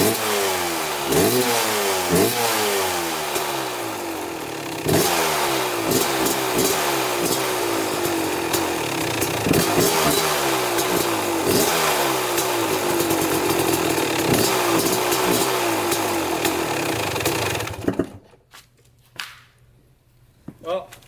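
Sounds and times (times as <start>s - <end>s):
two-stroke motorcycle engine revving: 0.0s - 18.2s.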